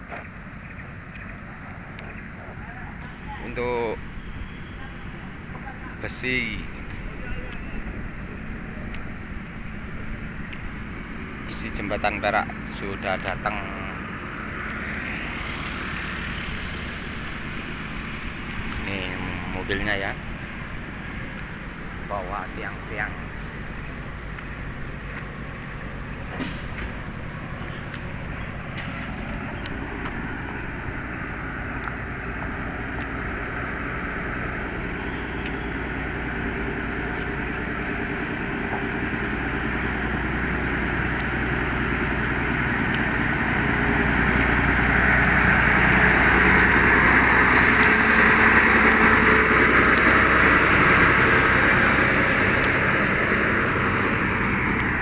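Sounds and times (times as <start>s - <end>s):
truck diesel engine running: 0.0s - 55.0s.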